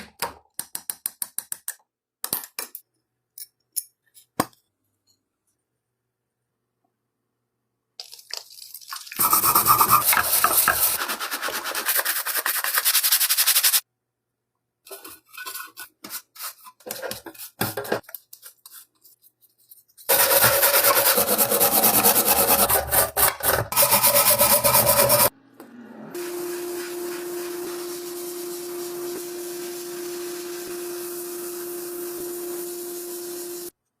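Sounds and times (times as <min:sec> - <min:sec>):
rough rubbing and scraping: 0:18.6 - 0:25.3.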